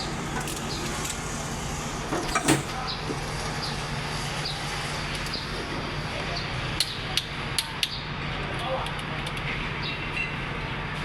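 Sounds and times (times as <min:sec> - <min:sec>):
low machine hum: 0:00.0 - 0:11.0
metal clank: 0:02.1 - 0:02.8.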